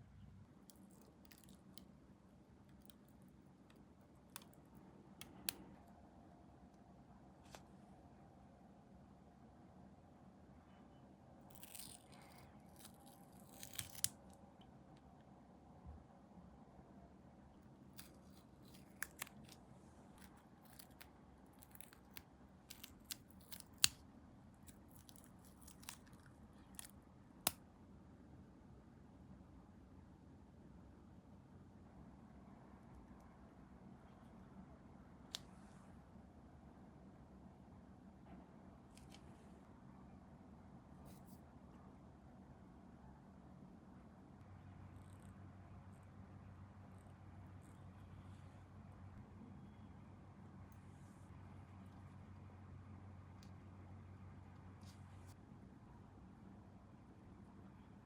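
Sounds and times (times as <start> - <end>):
room hum: 0.0 - 58.0
small plastic clicks and snips: 0.7 - 1.9, 2.6 - 5.8, 11.5 - 14.4, 17.9 - 19.6, 20.2 - 24.0, 24.6 - 27.6.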